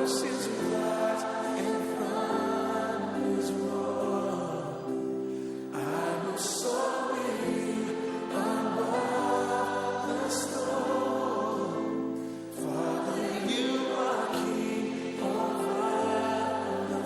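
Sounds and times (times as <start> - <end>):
gospel choir singing: 0.0 - 17.0.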